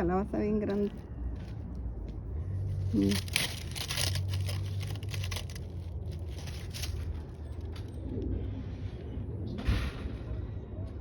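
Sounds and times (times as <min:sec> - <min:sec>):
steady low rumble: 0:00.0 - 0:11.0
leaves rustling and crackling: 0:02.8 - 0:07.5.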